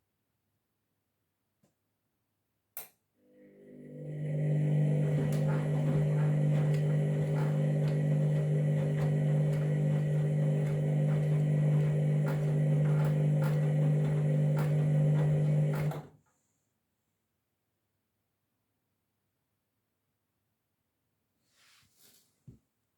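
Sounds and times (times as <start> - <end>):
washing machine humming: 3.2 - 16.2.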